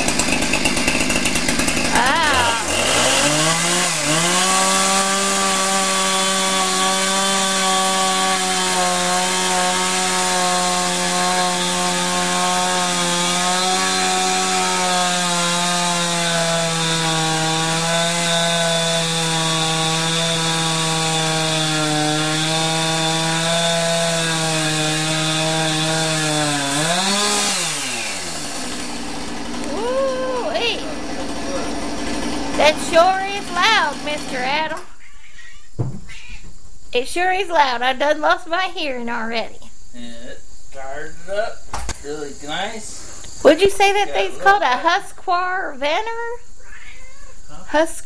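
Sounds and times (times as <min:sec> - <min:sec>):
chainsaw running at high revs: 0:00.0 - 0:34.8.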